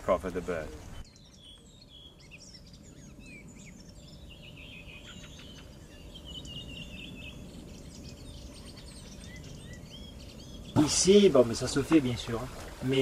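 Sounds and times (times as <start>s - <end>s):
low steady background noise: 0.0s - 13.0s
small birds chirping: 0.0s - 13.0s.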